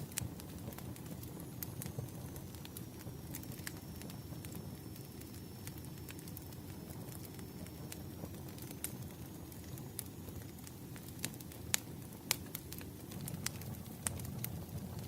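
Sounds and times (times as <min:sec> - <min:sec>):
low rumble of burning fire: 0:00.0 - 0:15.0
wood fire pops and snaps: 0:00.0 - 0:15.0.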